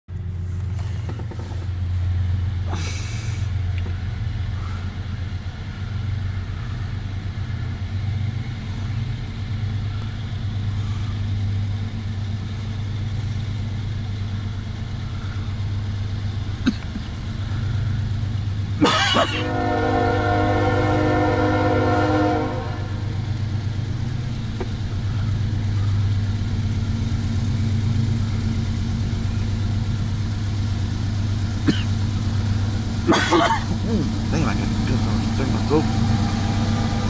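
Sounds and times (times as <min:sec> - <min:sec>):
car engine idling: 0:00.1 - 0:37.0
locomotive horn: 0:18.8 - 0:23.5, 0:33.0 - 0:37.0.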